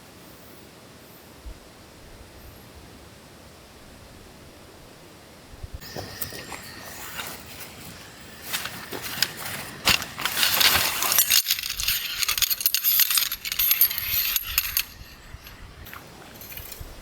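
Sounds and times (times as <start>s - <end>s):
metal tent stakes clinking: 5.8s - 17.0s
rustling: 5.8s - 17.0s.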